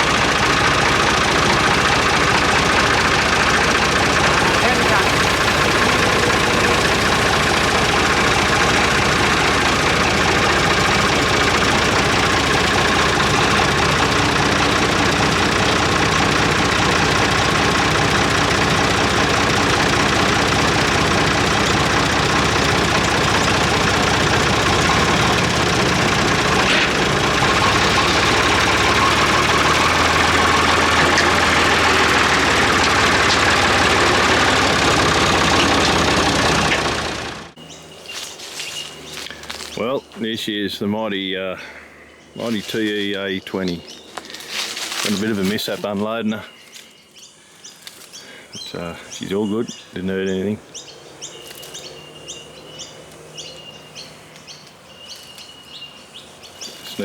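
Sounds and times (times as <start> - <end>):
vehicle engine idling: 0.0 - 57.0.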